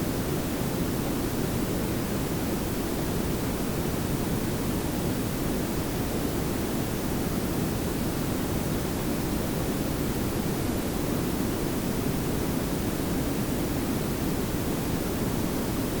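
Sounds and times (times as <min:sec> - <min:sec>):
pink noise hiss: 0:00.0 - 0:16.0.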